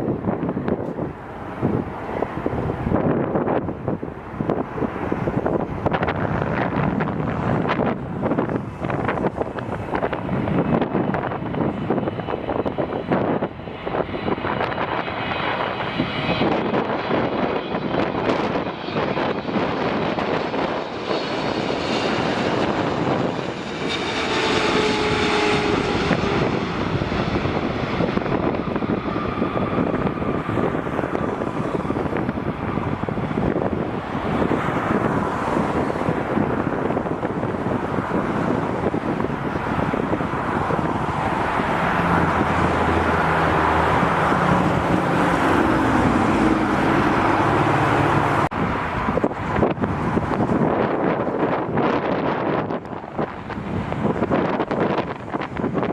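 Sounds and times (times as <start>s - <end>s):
jet airliner engines rushing: 0.0s - 55.9s
faint engine whine: 0.3s - 36.2s.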